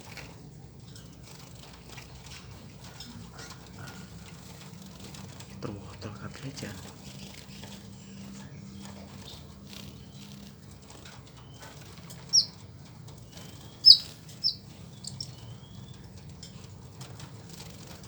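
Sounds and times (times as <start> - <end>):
birds fluttering and chirping: 0.0 - 18.0
sharp loud bird chirps: 12.3 - 12.6, 13.3 - 16.0.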